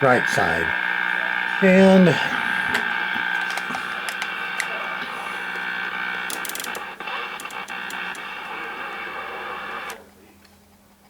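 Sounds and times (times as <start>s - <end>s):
radio static hiss: 0.0s - 10.0s
whistling radio tones: 0.0s - 10.0s.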